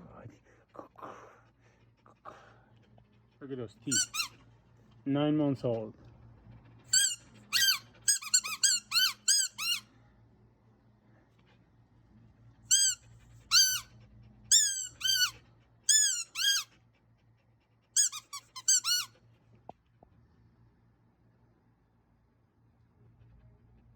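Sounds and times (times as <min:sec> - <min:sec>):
squeaky toy ball squeaking: 0:03.9 - 0:04.4, 0:06.9 - 0:09.8, 0:12.7 - 0:13.9, 0:14.5 - 0:16.7, 0:18.0 - 0:19.1.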